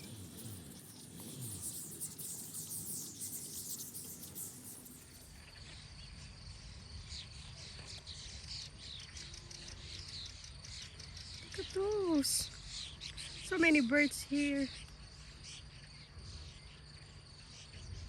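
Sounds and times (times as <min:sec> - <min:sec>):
flock of birds chirping: 0:00.0 - 0:18.0.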